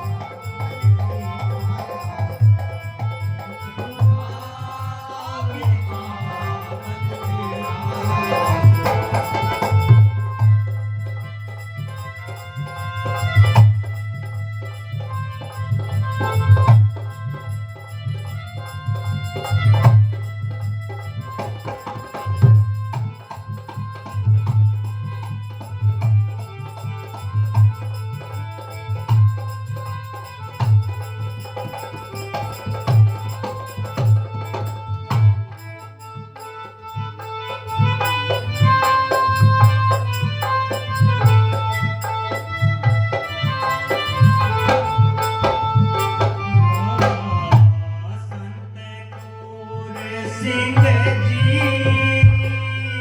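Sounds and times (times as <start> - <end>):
hand drum beating: 0.0 - 4.4, 5.4 - 47.8, 50.6 - 53.0
harmonium notes: 0.0 - 53.0.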